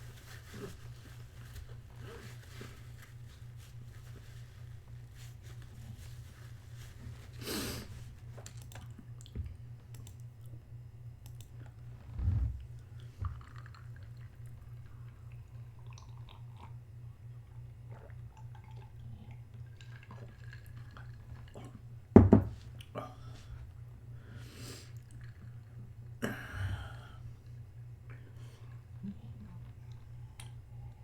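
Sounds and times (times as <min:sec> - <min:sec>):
rustling: 0:00.0 - 0:08.2
steady low hum: 0:00.0 - 0:31.0
dull thump: 0:22.2 - 0:22.6.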